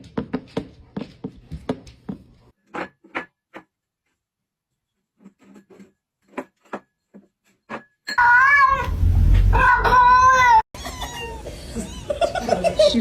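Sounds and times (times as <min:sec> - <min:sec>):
cat meowing: 0:08.2 - 0:10.6.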